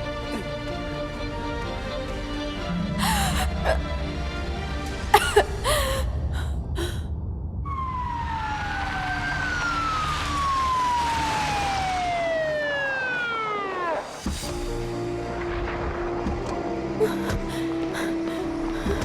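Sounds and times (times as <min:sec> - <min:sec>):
low rumble: 0:01.1 - 0:12.0
siren falling in pitch: 0:07.7 - 0:14.5.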